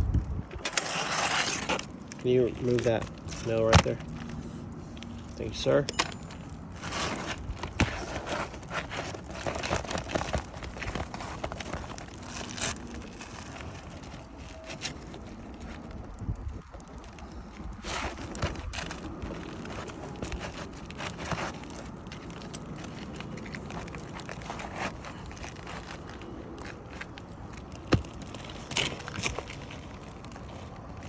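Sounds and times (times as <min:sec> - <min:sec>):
scraping and crunching shingles: 0:00.1 - 0:31.0.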